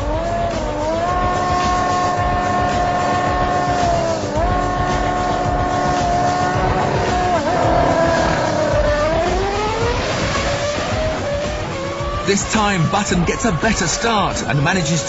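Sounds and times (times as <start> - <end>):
racing car engine revving: 0.0 - 15.0
racing motorcycle engine revving: 0.0 - 15.0.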